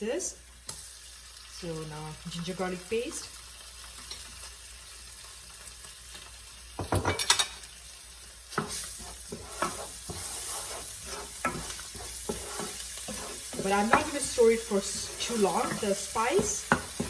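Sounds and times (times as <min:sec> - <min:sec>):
onions sizzling in oil: 0:00.0 - 0:17.0
spoon scraping and stirring: 0:08.5 - 0:17.0
spoon knocking against pan: 0:11.4 - 0:17.0.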